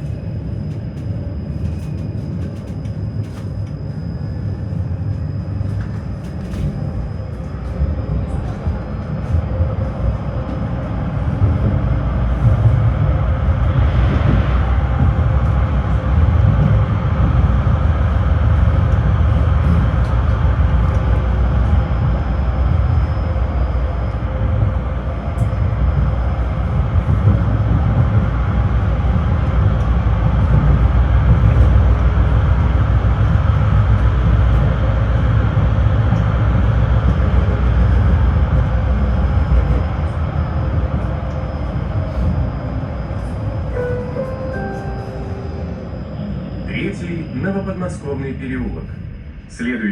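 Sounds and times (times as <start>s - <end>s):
tram wheels rumbling on rails: 0.0s - 49.9s.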